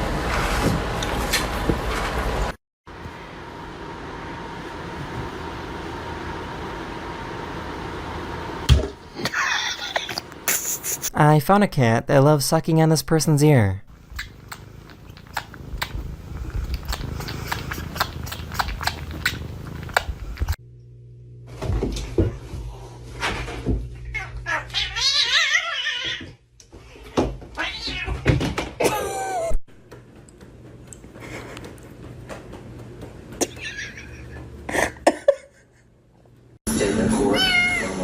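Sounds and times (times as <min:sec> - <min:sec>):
cat suckling with wet clicks: 0:14.0 - 0:20.6
cat meowing: 0:24.0 - 0:26.3, 0:27.6 - 0:28.2, 0:37.3 - 0:38.0.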